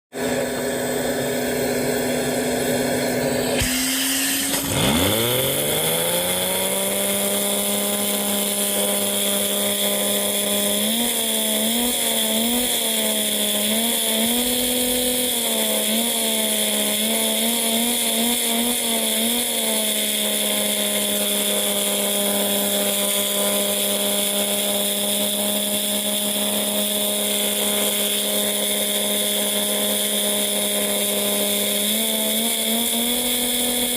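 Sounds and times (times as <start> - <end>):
toy engine high-pitched buzz: 0.2 - 33.9.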